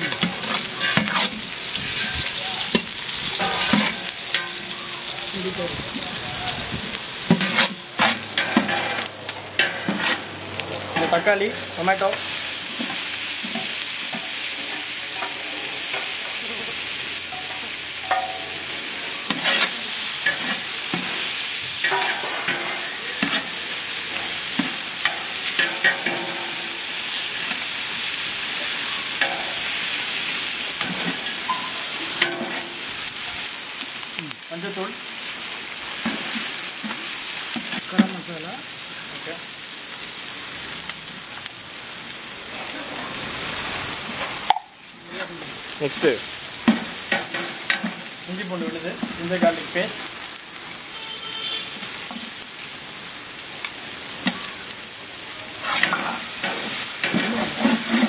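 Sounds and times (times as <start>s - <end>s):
spatula stirring and scraping: 0.0s - 4.7s, 6.8s - 14.4s, 19.3s - 26.7s, 55.6s - 58.0s
vegetables sizzling in hot oil: 0.0s - 58.0s.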